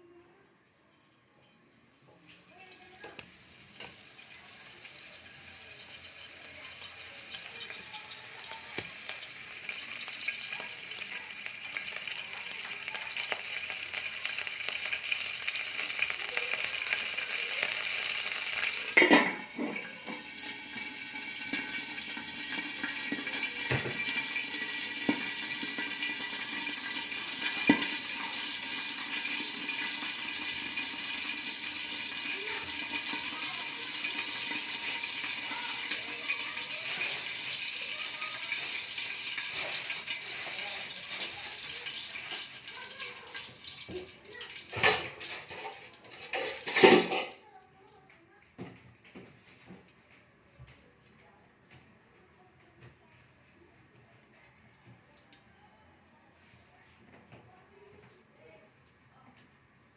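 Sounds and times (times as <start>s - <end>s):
chicken sizzling in oil: 2.2s - 47.4s.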